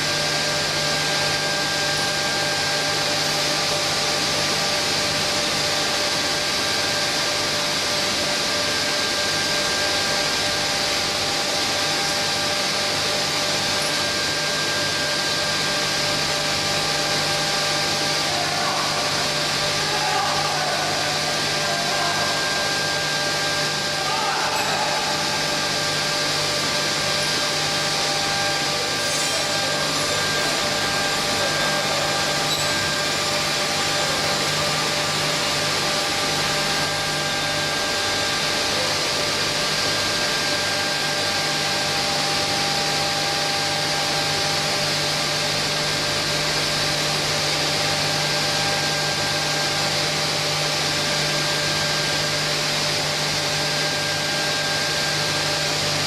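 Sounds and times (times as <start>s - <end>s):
grooving machine whirring: 22.4s - 38.7s.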